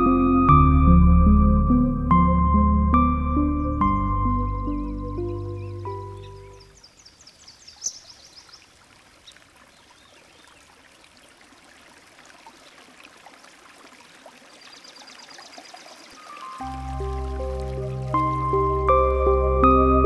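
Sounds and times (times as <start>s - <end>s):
faint running water: 5.7s - 19.6s.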